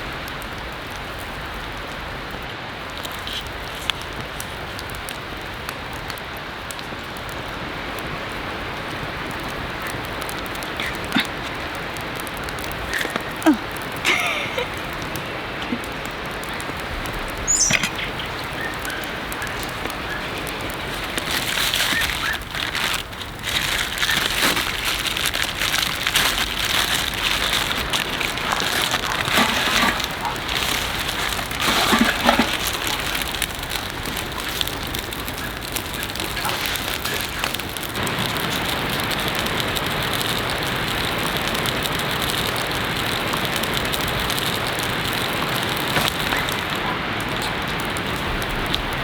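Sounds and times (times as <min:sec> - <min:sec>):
heavy rain pouring: 0:00.0 - 0:49.0.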